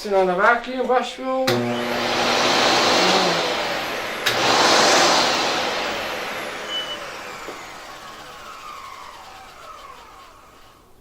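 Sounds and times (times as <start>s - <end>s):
vacuum cleaner running: 1.3s - 11.0s.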